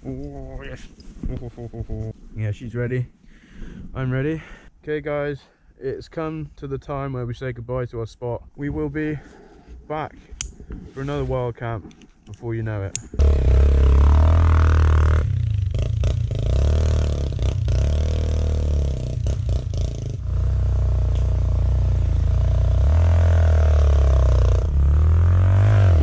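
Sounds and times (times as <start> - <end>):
dirt bike engine revving: 13.2 - 26.0.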